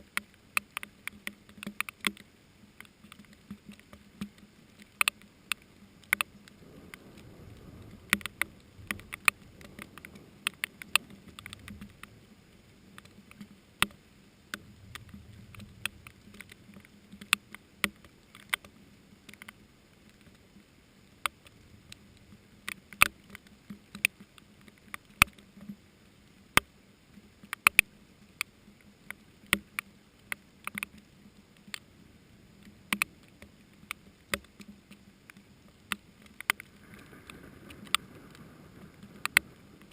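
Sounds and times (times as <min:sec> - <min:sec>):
raindrops tapping: 0:00.0 - 0:25.7, 0:32.6 - 0:39.9
distant thunder rumble: 0:06.6 - 0:12.2.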